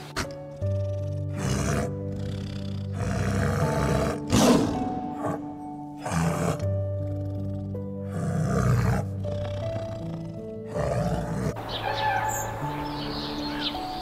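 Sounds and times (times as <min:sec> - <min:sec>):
tiger growling: 0:00.0 - 0:11.7
calm background music: 0:00.0 - 0:14.0
bird chirps: 0:11.6 - 0:14.0.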